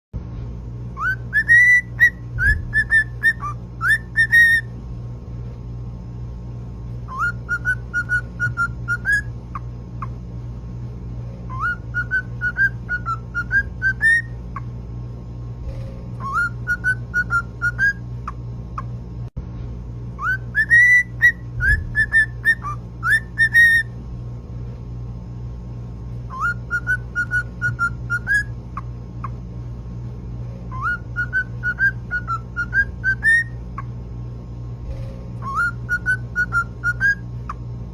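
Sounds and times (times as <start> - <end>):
steady low hum: 0.2 - 37.9
cockatiel whistling: 1.0 - 4.7, 7.1 - 10.1, 11.5 - 14.4, 16.2 - 18.9, 20.2 - 24.0, 26.3 - 28.5, 30.7 - 33.9, 35.4 - 37.2.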